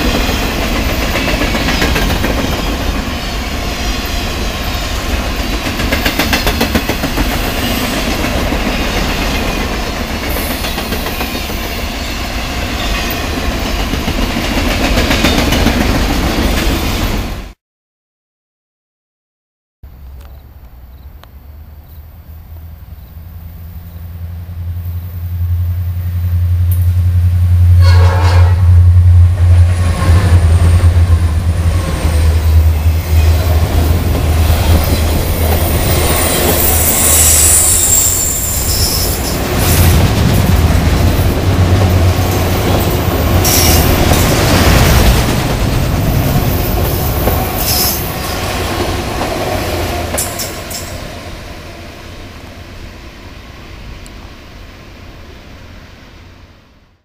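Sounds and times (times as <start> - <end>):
train wheel squeal: 0.0 - 13.9, 34.4 - 40.1, 42.2 - 44.3, 47.0 - 48.4
train cars clanking: 0.0 - 17.3, 27.8 - 51.3
locomotive engine drone: 19.9 - 37.7, 39.4 - 52.9.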